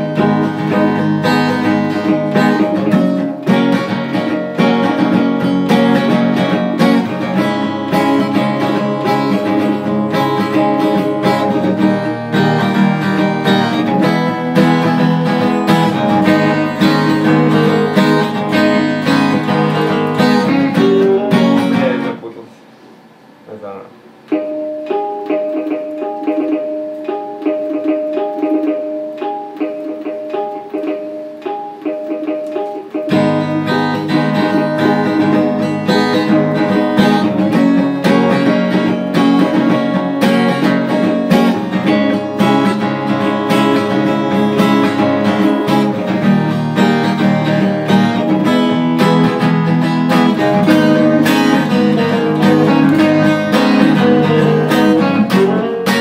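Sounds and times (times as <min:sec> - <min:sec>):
guitar playing: 0:00.0 - 0:56.0.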